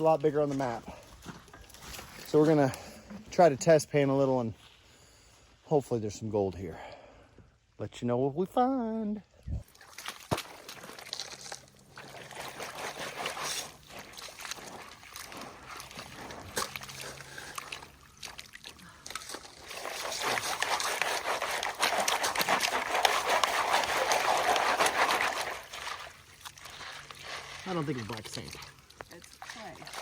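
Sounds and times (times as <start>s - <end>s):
water sloshing and splashing: 9.6s - 30.0s
gritty scraping in a pan: 10.7s - 18.0s, 19.1s - 30.0s.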